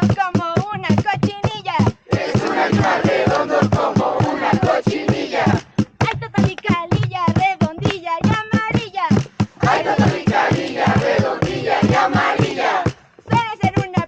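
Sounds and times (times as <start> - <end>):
group singing together: 2.1 - 5.8, 9.6 - 13.0.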